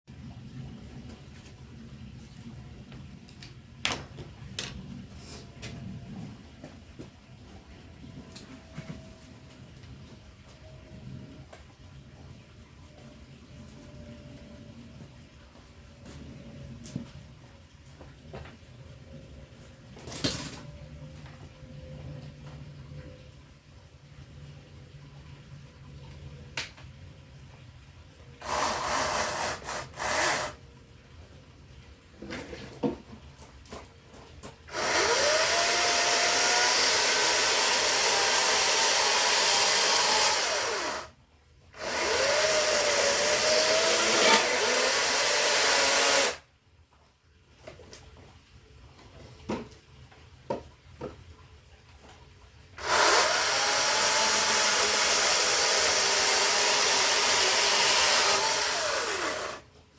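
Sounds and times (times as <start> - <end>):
electric saw cutting wood: 28.4 - 30.6, 34.7 - 41.1, 41.8 - 46.4, 52.8 - 59.6.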